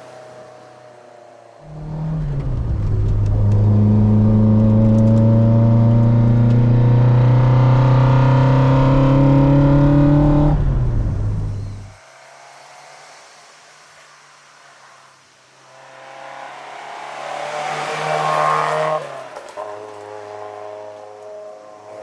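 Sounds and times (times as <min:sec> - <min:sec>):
car engine accelerating: 0:01.6 - 0:12.0.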